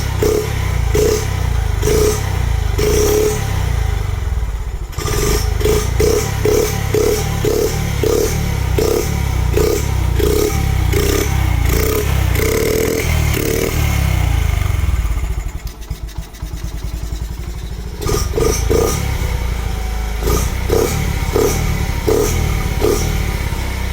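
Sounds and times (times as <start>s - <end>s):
motorcycle engine pulsing: 0.0s - 23.9s.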